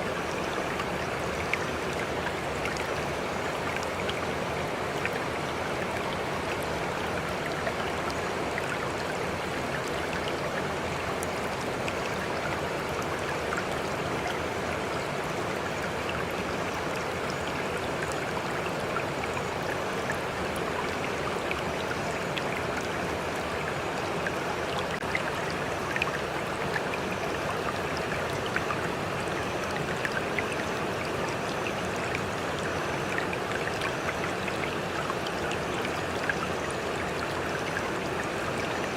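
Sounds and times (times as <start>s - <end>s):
water flowing: 0.0s - 38.9s.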